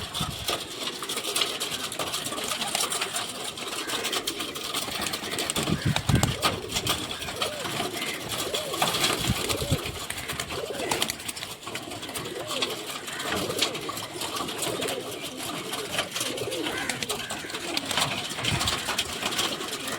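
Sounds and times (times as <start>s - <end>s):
pigeons cooing: 0.0s - 19.9s
sharp clicks and rustles: 0.0s - 19.9s.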